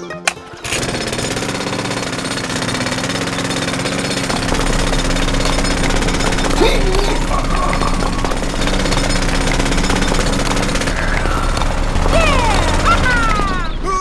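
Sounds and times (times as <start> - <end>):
rapid mechanical rattle: 0.2 - 14.0
low hum: 3.1 - 14.0.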